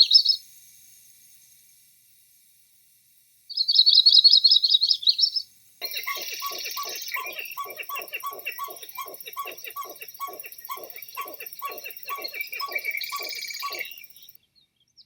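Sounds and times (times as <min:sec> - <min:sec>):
higher bird chirping: 0:03.5 - 0:14.4
bird short falling calls: 0:05.8 - 0:14.0.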